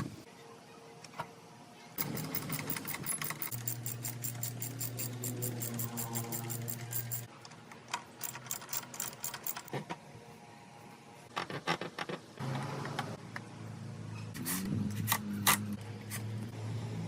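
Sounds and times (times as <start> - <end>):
small electric machine humming and clicking: 2.0 - 9.7.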